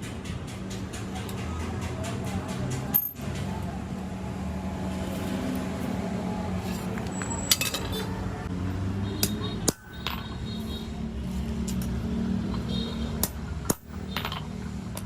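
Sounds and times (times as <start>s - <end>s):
metal tools clinking: 2.7s - 3.5s, 6.6s - 8.2s.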